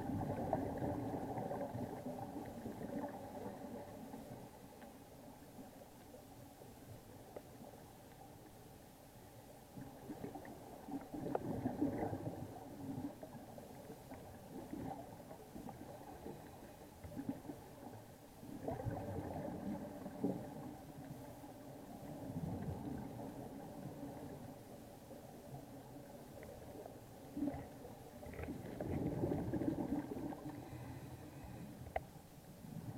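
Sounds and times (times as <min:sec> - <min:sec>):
bubbles gurgling underwater: 0:00.0 - 0:04.4, 0:09.8 - 0:21.1, 0:21.8 - 0:24.6, 0:26.6 - 0:30.8.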